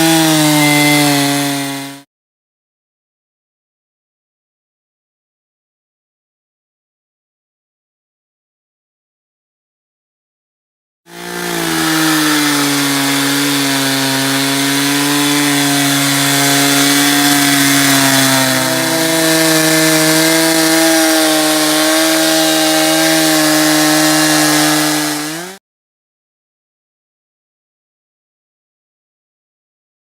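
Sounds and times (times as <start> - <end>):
chainsaw cutting wood: 0.0 - 2.1, 11.1 - 25.6.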